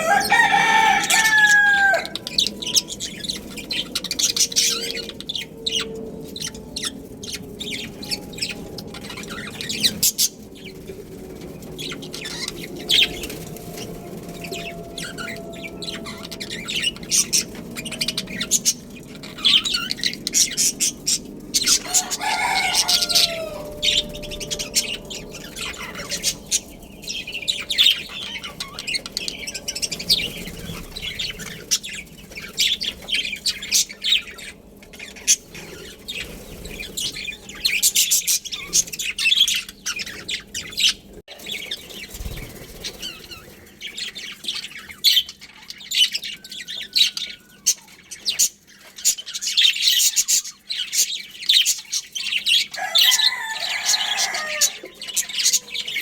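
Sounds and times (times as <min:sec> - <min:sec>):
budgerigars chirping: 0:11.8 - 0:56.0.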